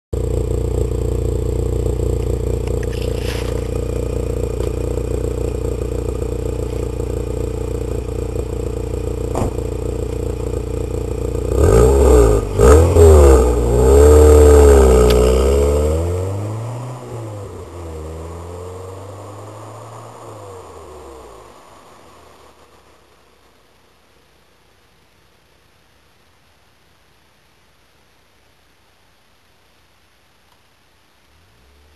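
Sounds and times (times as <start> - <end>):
car engine idling and revving: 0.2 - 24.6, 31.3 - 31.9.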